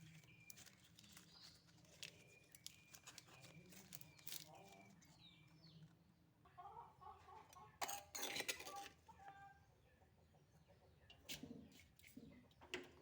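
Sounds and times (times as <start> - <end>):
chickens clucking: 6.4 - 13.0.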